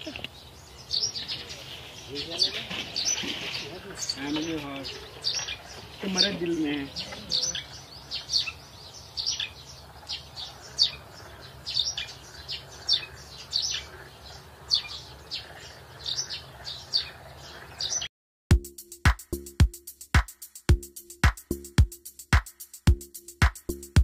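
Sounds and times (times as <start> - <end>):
bird chirping: 0.0 - 18.1.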